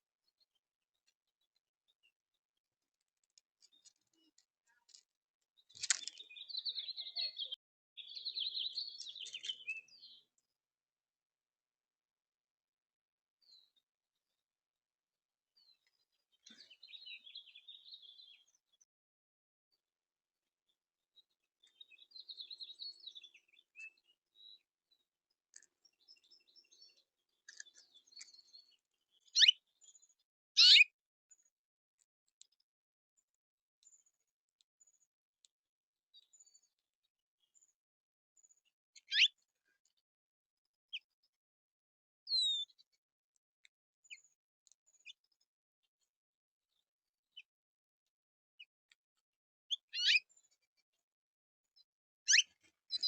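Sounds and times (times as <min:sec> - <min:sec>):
birds chirping and twittering: 0:03.0 - 0:10.6, 0:13.4 - 0:14.4, 0:15.5 - 0:19.0, 0:20.7 - 0:35.2, 0:36.1 - 0:37.8, 0:38.4 - 0:41.4, 0:42.2 - 0:43.0, 0:44.0 - 0:47.6, 0:49.6 - 0:51.0, 0:51.7 - 0:53.0
songbird warbling: 0:50.0 - 0:50.2, 0:52.3 - 0:52.5.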